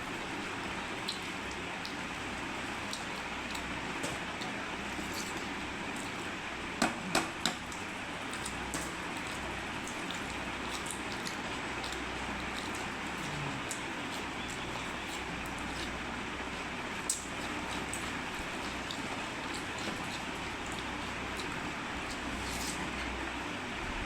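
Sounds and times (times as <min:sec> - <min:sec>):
wet chewing: 0:00.1 - 0:23.4.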